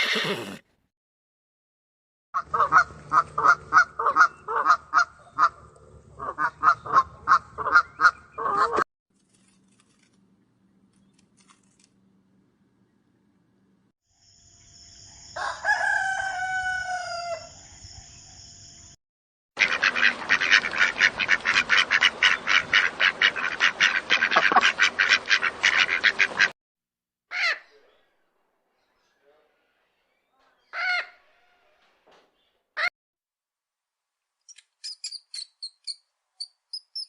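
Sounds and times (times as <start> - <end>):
rooster crowing: 15.2 - 17.6.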